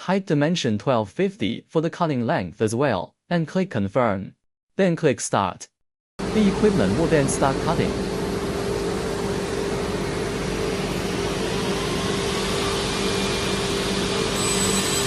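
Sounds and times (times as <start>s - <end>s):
panel saw machine hum: 6.2s - 15.0s.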